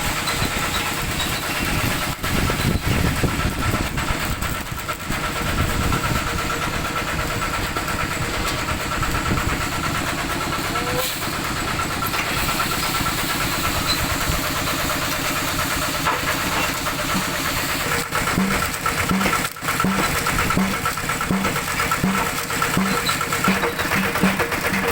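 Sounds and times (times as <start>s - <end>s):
tractor engine running: 0.0s - 24.9s.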